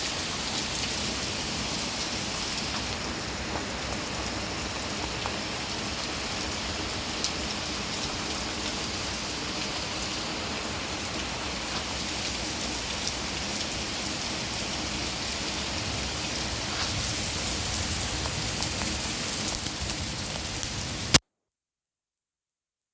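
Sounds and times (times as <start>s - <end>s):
steady rain falling: 0.0s - 21.2s
raindrops ticking: 0.2s - 21.2s.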